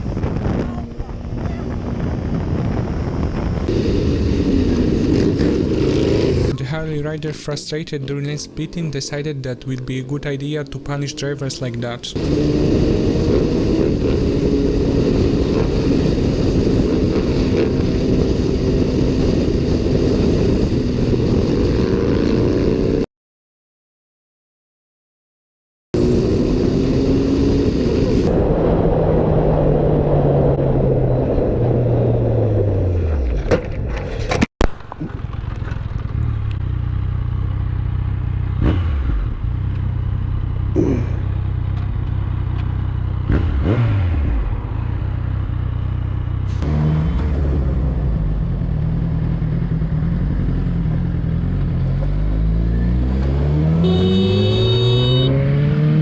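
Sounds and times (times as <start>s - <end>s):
motorcycle engine running: 0.0s - 6.6s, 12.2s - 23.0s, 34.8s - 52.5s, 53.8s - 56.0s.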